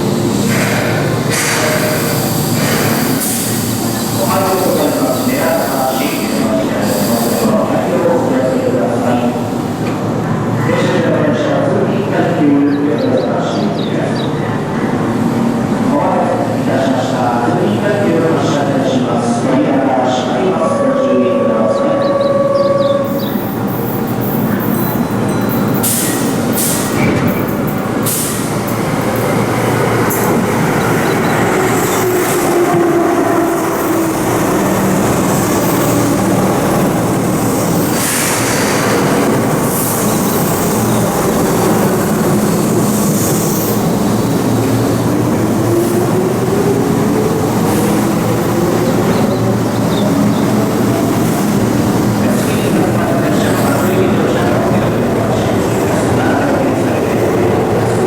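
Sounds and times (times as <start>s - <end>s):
train wheel and rail noise: 0.0s - 58.0s.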